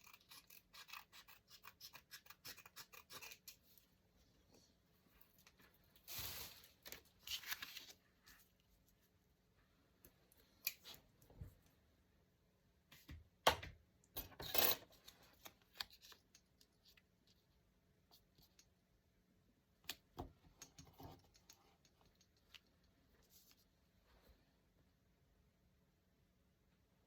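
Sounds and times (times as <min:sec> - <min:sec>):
paper rustle: 0:06.0 - 0:08.6.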